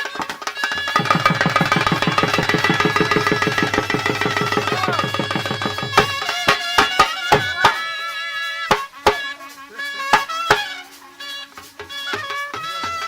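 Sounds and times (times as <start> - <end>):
hand drum strokes: 0.0 - 13.0
sustained melody line: 1.0 - 5.8.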